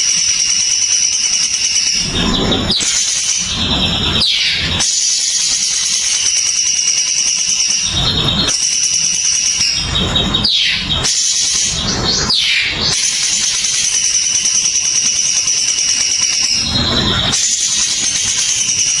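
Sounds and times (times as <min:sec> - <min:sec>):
bird trilling: 0:00.2 - 0:19.0
sharp falling bird calls: 0:00.4 - 0:19.0
low rumbling bursts: 0:02.0 - 0:04.8.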